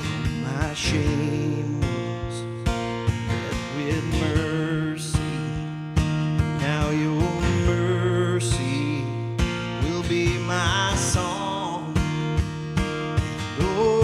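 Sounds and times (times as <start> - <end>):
steady drum beat: 0.0 - 1.4, 5.2 - 14.0
strummed acoustic guitar: 0.0 - 14.0.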